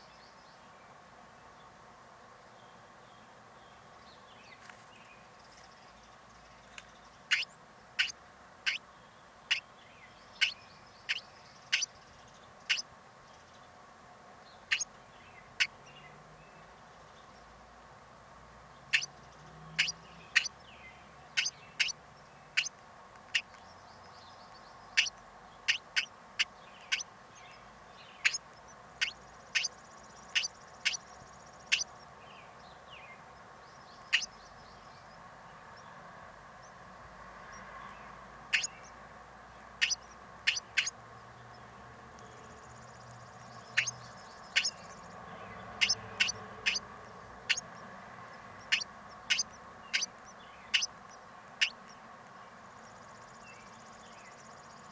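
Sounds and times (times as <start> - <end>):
bird chip calls: 6.7 - 8.9, 9.5 - 12.9, 14.6 - 16.0, 18.9 - 20.6, 21.3 - 23.7, 24.5 - 32.0, 34.0 - 34.5, 38.5 - 39.0, 39.8 - 41.0, 43.6 - 45.1, 45.7 - 47.7, 48.6 - 52.0.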